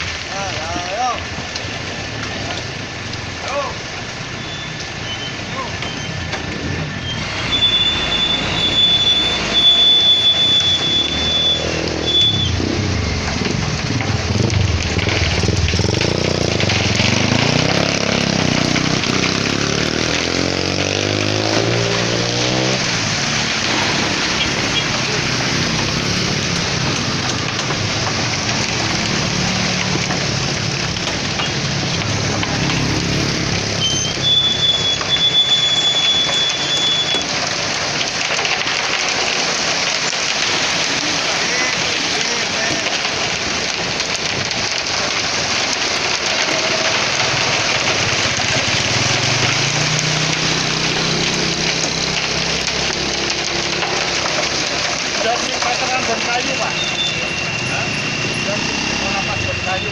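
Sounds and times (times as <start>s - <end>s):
steady rushing noise: 5.0s - 33.8s.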